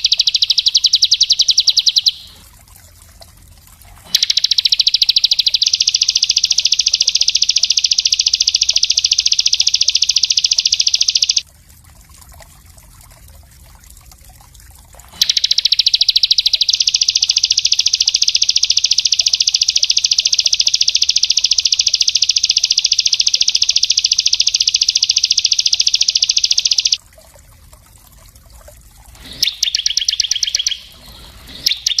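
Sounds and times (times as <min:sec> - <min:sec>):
songbird high-pitched trill: 0:00.0 - 0:02.4, 0:04.1 - 0:11.4, 0:15.2 - 0:27.0, 0:29.4 - 0:32.0.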